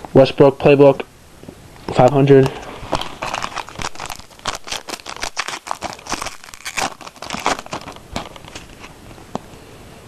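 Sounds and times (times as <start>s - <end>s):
foil wrapper tearing and crinkling: 2.0s - 9.0s.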